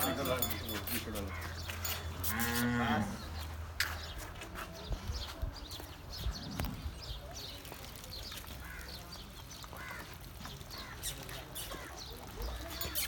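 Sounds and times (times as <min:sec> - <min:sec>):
small birds chirping: 0:03.1 - 0:13.0.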